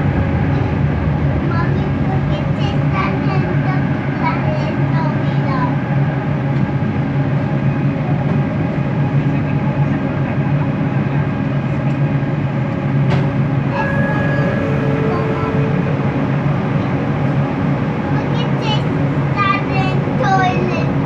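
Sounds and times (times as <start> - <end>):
metro train rumble and whine: 0.0 - 21.0.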